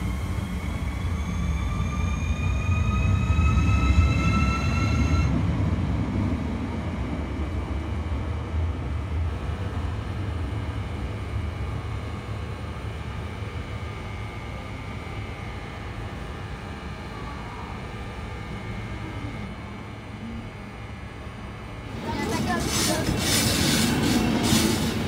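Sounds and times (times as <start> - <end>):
rising whine: 0.0 - 5.6
train wheels rumbling on rails: 21.7 - 25.0.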